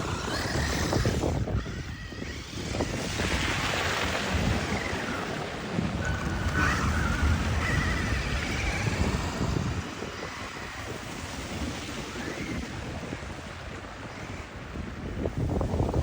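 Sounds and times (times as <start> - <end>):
wind buffeting microphone: 0.0 - 16.0
faint high whine: 4.6 - 12.7.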